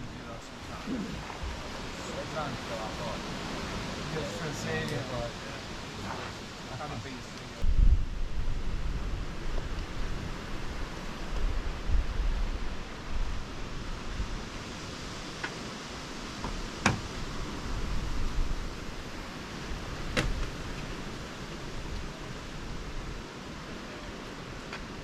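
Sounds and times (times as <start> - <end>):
steady hiss: 0.0 - 25.0
wind buffeting microphone: 7.6 - 15.3, 16.1 - 23.3.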